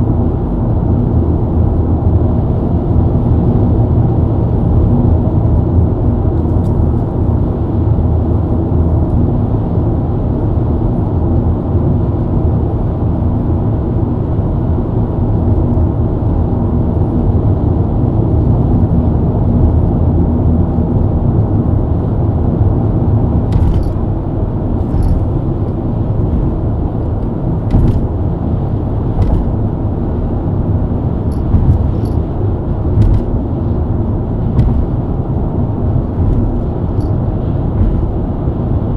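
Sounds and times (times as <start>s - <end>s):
car engine cruising: 22.7s - 38.9s
tyre and road rumble: 22.9s - 38.9s.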